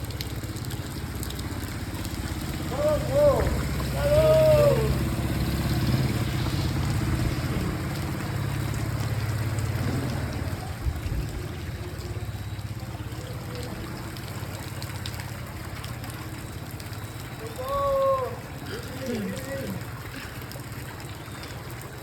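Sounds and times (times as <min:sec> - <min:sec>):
vehicle engine at low revs: 0:00.0 - 0:17.5
rain: 0:00.0 - 0:22.0
running water: 0:00.0 - 0:22.0
wavering high call: 0:02.7 - 0:05.3, 0:17.3 - 0:19.8.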